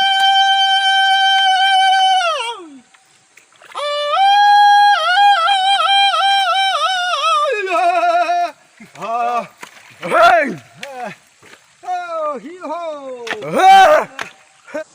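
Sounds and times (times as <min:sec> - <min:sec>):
high voice singing with yodel breaks: 0:00.0 - 0:02.8.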